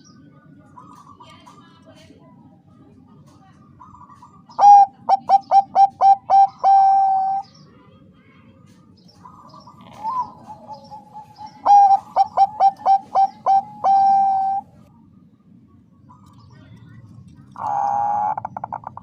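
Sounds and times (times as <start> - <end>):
dove cooing: 3.8 - 7.5, 9.2 - 14.9, 17.5 - 19.0.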